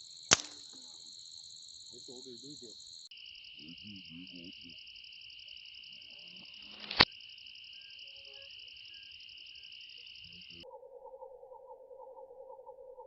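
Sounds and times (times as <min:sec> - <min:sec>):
crickets trilling: 0:00.0 - 0:13.0
air rifle shot: 0:00.3 - 0:00.7.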